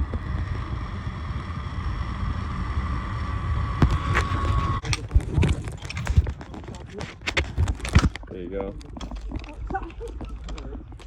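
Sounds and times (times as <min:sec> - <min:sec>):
zip line pulleys whining: 0:00.0 - 0:04.8
wind rumbling on microphone: 0:00.0 - 0:11.0.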